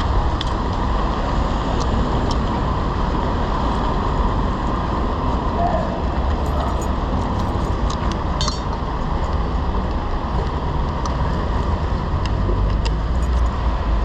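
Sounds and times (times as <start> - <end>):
street traffic rumble: 0.0 - 14.0
wind noise: 0.0 - 14.0
light metallic clicks and clinks: 6.4 - 7.8, 8.4 - 9.4.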